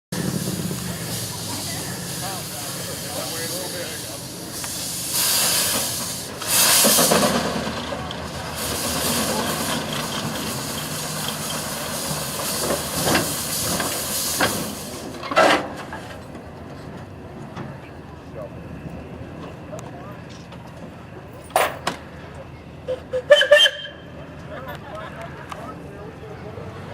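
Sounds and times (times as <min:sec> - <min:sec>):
steam engine hissing: 0:00.1 - 0:16.2.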